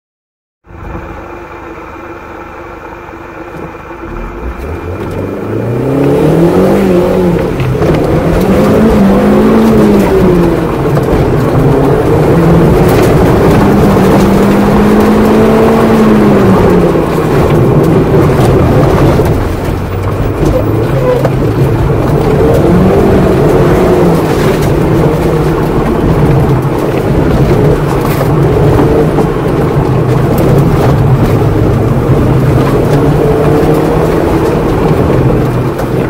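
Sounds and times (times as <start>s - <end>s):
car engine accelerating: 0.6s - 36.0s.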